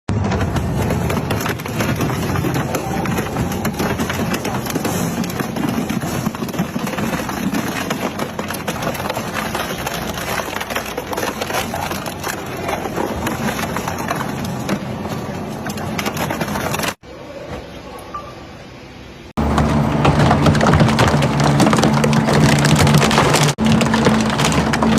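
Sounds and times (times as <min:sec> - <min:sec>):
shredding machine crushing material: 0:00.1 - 0:17.0, 0:19.4 - 0:24.9.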